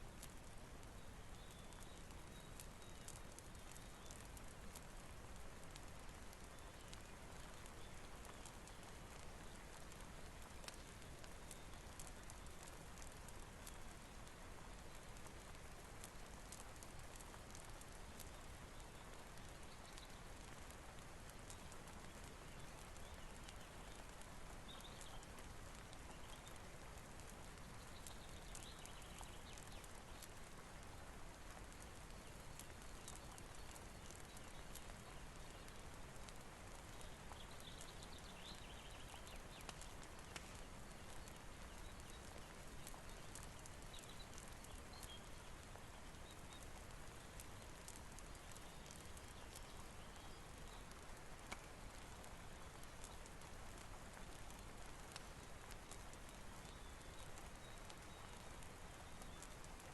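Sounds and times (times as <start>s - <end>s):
fire crackling: 0.0s - 59.9s
steady rain: 0.0s - 59.9s
raindrop ticks: 0.1s - 59.9s.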